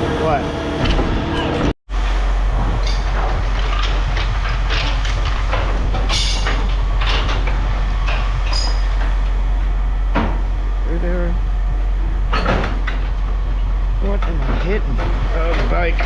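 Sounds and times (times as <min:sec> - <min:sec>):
heavy machinery engine droning: 0:00.0 - 0:16.0
scrap metal clanking and scraping: 0:02.4 - 0:09.4, 0:12.0 - 0:16.0.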